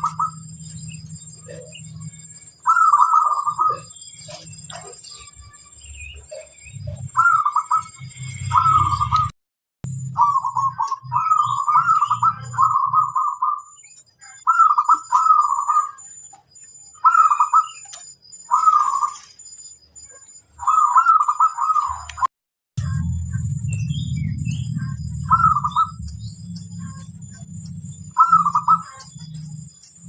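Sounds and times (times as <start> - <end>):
dove cooing: 0.0 - 0.5, 1.4 - 5.3, 6.2 - 9.3, 10.2 - 16.2, 17.0 - 19.3, 20.1 - 22.3, 24.5 - 29.6
faint steady high tone: 0.0 - 30.0.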